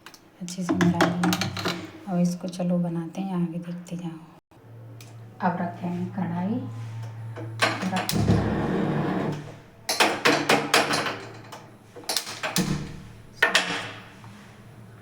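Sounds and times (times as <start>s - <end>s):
metal cookware clanking: 0.7s - 2.0s.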